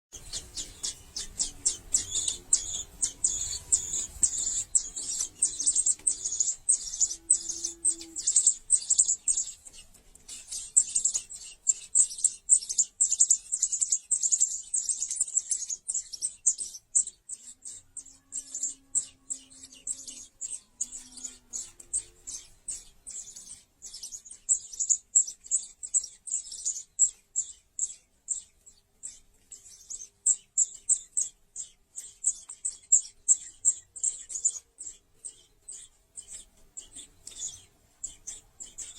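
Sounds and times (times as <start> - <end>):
baby birds cheeping: 0.1 - 38.9.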